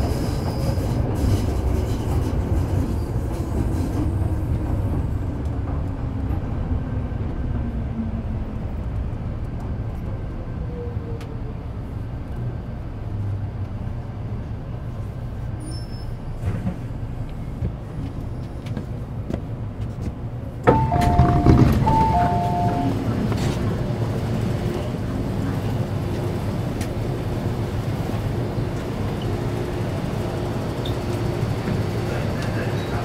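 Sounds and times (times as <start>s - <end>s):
train rumbling as it slows: 0.0s - 33.0s
two-tone door chime: 20.7s - 23.0s.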